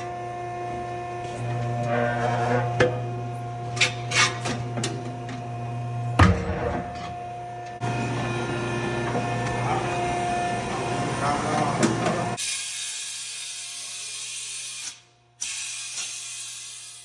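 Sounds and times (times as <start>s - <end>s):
machine motor humming: 0.0s - 12.4s.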